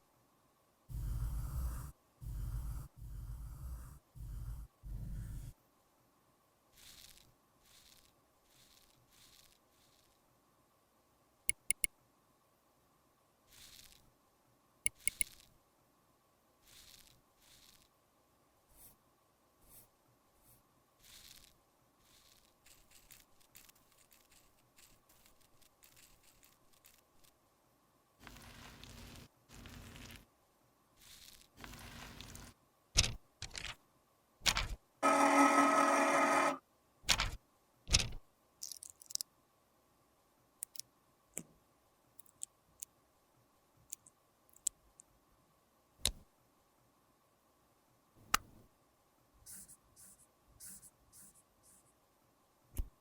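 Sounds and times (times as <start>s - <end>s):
crackly scratching: 6.7s - 10.2s, 13.5s - 14.1s, 16.6s - 18.0s, 20.5s - 27.4s, 28.2s - 30.3s, 31.0s - 32.6s
small objects clicking and tapping: 14.9s - 15.5s, 37.1s - 39.3s, 40.6s - 41.5s, 42.2s - 42.9s, 43.9s - 45.1s
long scraping sound: 35.0s - 36.6s.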